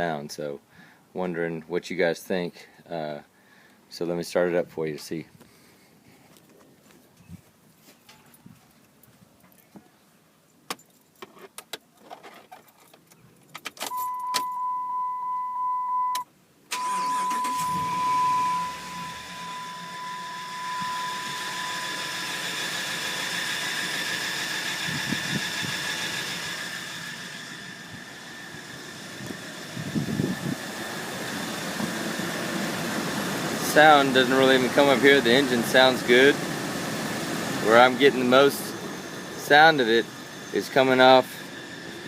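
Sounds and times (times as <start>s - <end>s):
steady warning chime: 13.9s - 22.5s
high-pitched whine: 13.9s - 42.0s
truck engine cranking and idling: 16.7s - 42.0s.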